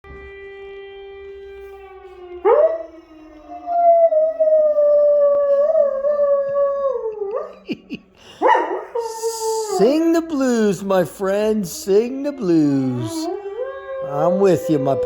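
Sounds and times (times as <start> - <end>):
dog howling: 1.6 - 7.8, 8.4 - 10.7, 11.9 - 15.0.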